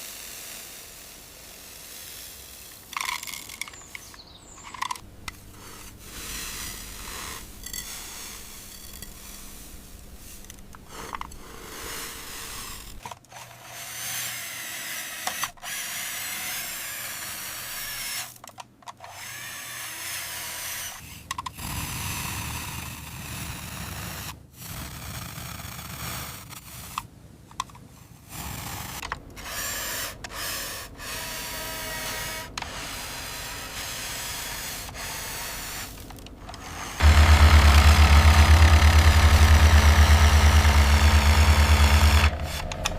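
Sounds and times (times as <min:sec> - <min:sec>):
small motor whirring: 0:00.0 - 0:18.4, 0:19.0 - 0:23.4, 0:28.3 - 0:42.9
loud low engine-like hum: 0:37.0 - 0:42.9.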